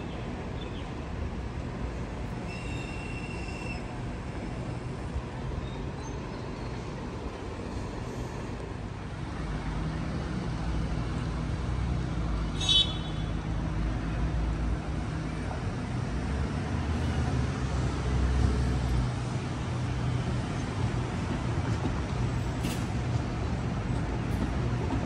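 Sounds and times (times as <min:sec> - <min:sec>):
electric train hum and rumble: 0:00.0 - 0:25.0
brief high squeal: 0:02.5 - 0:03.9.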